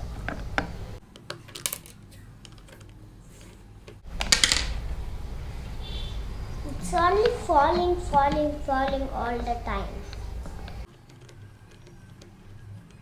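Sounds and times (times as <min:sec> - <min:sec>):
plastic parts clacking: 0:00.1 - 0:04.9, 0:10.0 - 0:13.0
plastic toy parts clicking: 0:01.1 - 0:04.8, 0:10.8 - 0:13.0.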